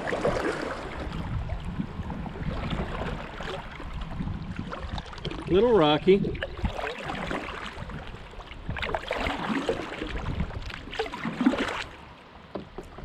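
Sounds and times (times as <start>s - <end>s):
moving water: 0.0s - 13.0s.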